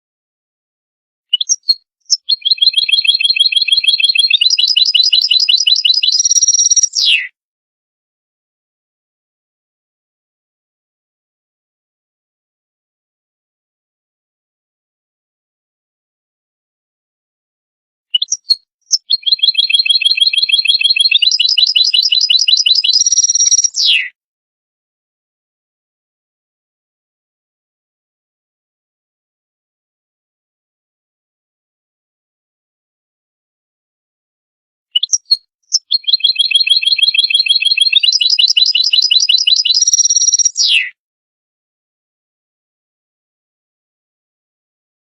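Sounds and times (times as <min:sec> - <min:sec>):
goldfinch twittering: 0:01.4 - 0:06.9, 0:19.0 - 0:23.7, 0:35.0 - 0:40.5.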